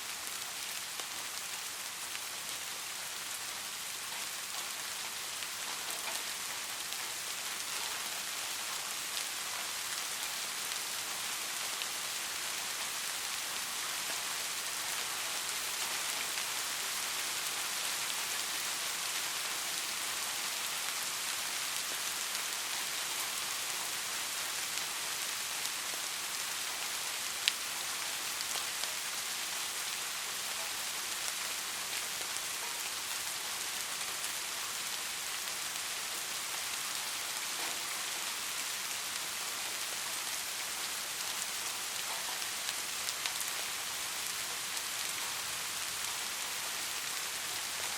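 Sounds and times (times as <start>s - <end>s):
rain falling on a street: 0.0s - 47.9s.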